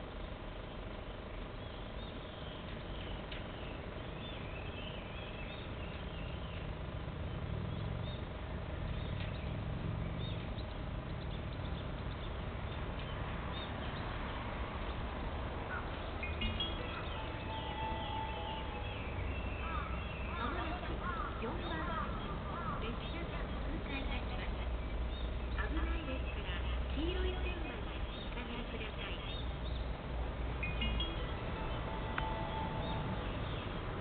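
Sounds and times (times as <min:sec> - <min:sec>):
birds chirping: 0:00.0 - 0:34.0
train rumbling: 0:12.3 - 0:34.0.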